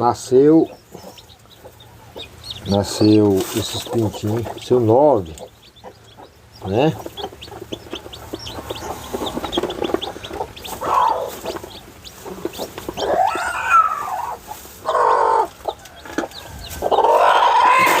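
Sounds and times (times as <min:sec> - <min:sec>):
chicks peeping: 0:00.0 - 0:18.0
hen calling loudly: 0:10.1 - 0:11.4, 0:13.0 - 0:15.5, 0:17.0 - 0:18.0.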